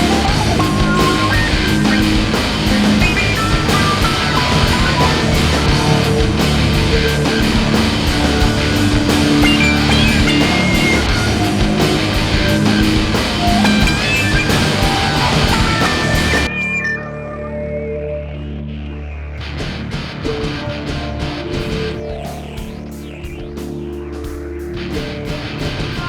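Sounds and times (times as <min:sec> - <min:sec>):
rock music with guitar and drums: 0:00.0 - 0:17.9, 0:19.4 - 0:26.0.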